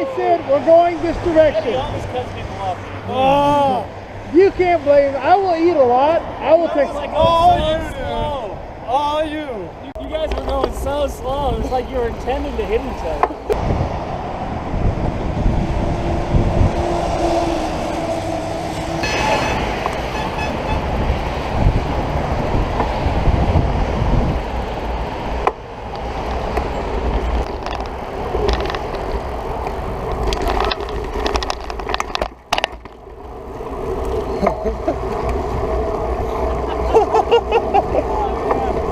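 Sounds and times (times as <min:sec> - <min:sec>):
tyres humming on road: 0:00.0 - 0:38.9
wind buffeting microphone: 0:00.0 - 0:38.9.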